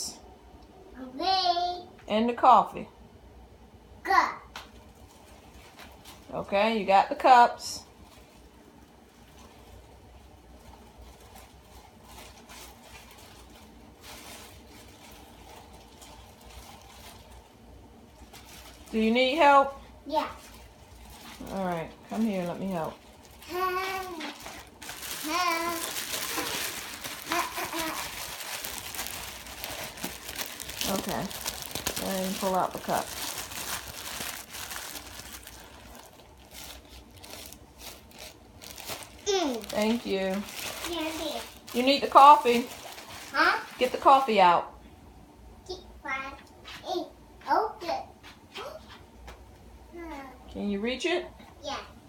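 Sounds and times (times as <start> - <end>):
low room hum: 0.0 - 52.0
plastic packaging crinkling: 4.7 - 6.4, 7.9 - 19.4, 20.2 - 44.4.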